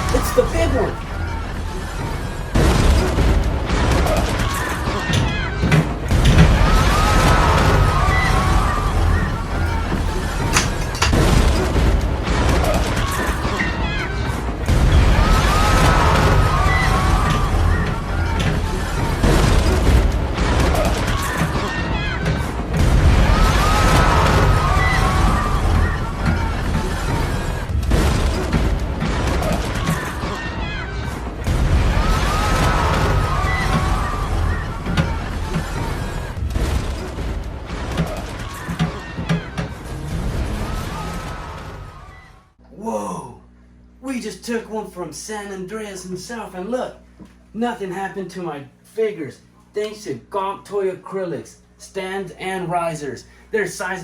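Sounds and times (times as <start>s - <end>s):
crashes and knocks: 9.2s - 11.8s.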